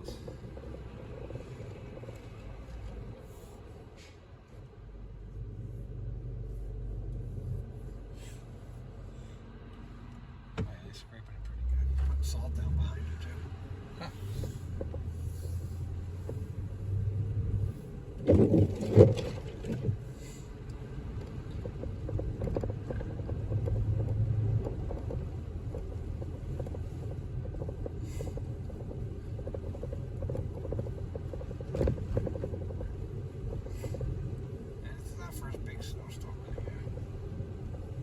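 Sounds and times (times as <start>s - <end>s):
car road and engine rumble: 0.0s - 38.0s.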